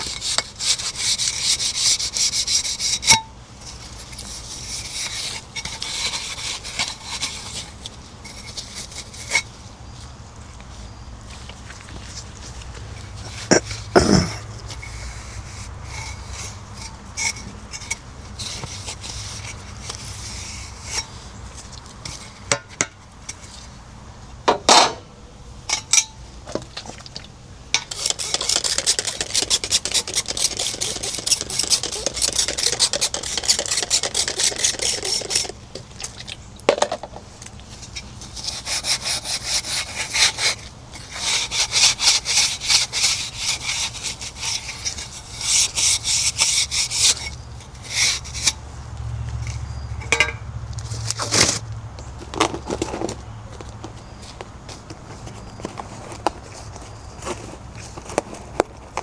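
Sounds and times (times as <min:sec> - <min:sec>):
scrubbing refrigerator surface: 0:28.0 - 0:35.6, 0:38.1 - 0:48.5.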